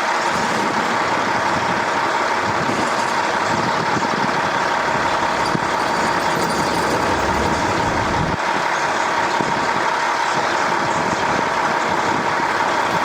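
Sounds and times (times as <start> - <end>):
machine running with whine: 0.6 - 8.6
low rumble: 4.2 - 8.4.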